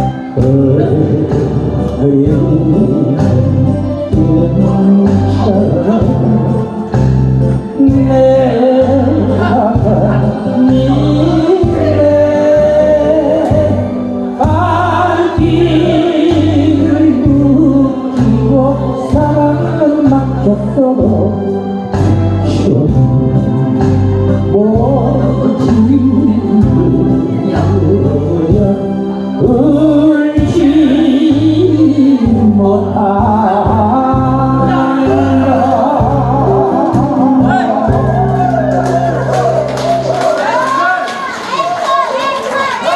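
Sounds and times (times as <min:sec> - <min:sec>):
person singing melody: 0:00.0 - 0:39.2
instrumental accompaniment with bass: 0:00.0 - 0:41.0.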